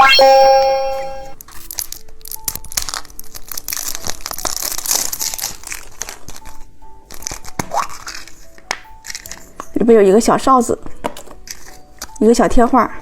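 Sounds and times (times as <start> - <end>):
plastic wrapping crinkling and tearing: 1.4 - 9.8, 10.9 - 12.2.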